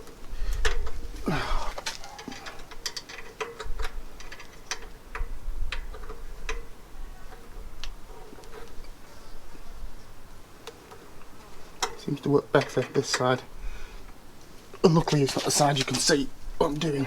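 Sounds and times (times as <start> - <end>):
allen key metallic clicks: 1.7 - 9.0.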